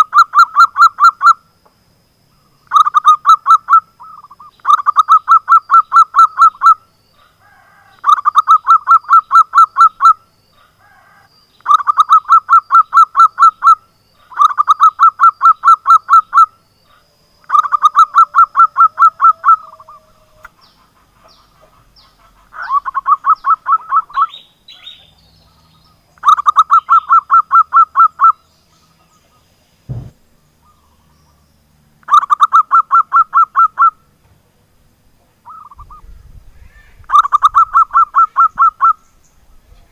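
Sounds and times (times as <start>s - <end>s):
dove cooing: 2.7s - 24.3s, 37.0s - 39.0s
faint knock: 29.9s - 30.2s.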